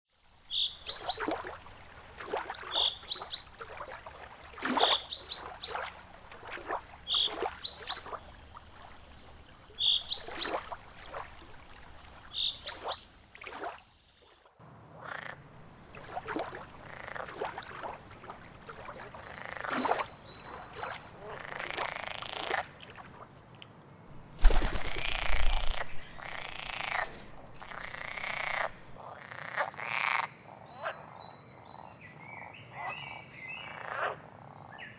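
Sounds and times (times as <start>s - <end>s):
frogs croaking: 4.8s - 11.4s, 14.9s - 23.2s, 24.2s - 34.9s.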